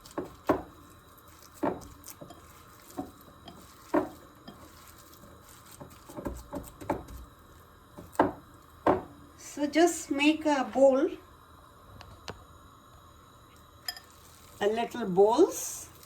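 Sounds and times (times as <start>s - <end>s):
hands patting wet mixture: 0.0s - 7.4s.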